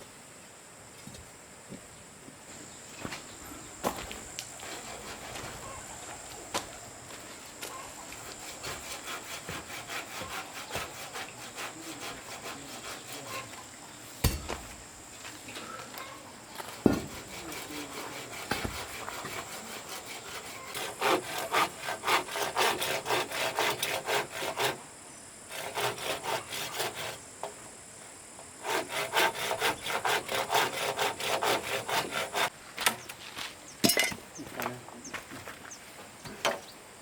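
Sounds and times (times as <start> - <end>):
hand saw cutting wood: 4.5 - 5.7, 8.1 - 13.6, 16.6 - 24.8, 25.5 - 27.2, 28.6 - 32.5
knocks: 14.2 - 14.9, 16.8 - 17.3, 18.5 - 18.9.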